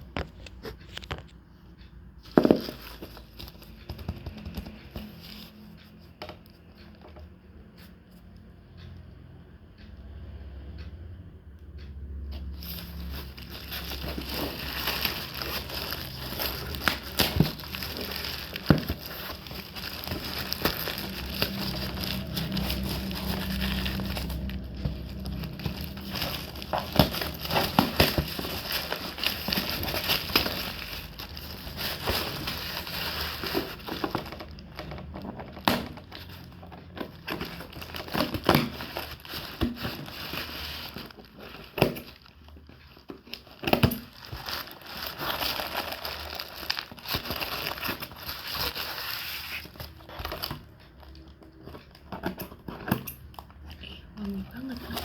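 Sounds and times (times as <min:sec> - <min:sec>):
gift wrap crinkling: 0:12.6 - 0:51.7, 0:54.2 - 0:55.0.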